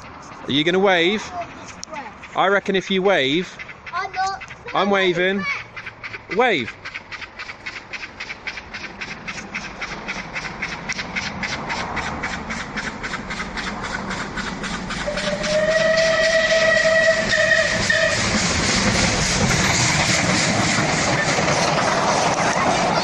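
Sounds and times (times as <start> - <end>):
steam locomotive chugging: 0.0 - 23.0
steam whistle blast: 15.0 - 18.4.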